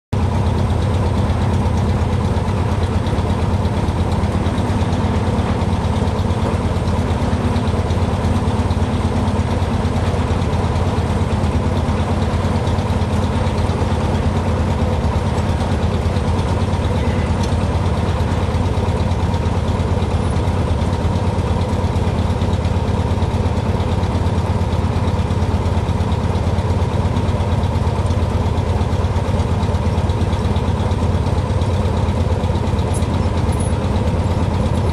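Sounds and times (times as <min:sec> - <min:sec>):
aircraft engine droning: 0:00.2 - 0:34.9.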